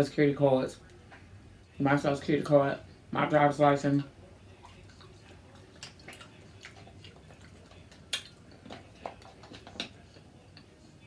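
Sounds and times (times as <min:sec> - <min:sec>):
chewing mouth smacks: 0:04.6 - 0:10.7.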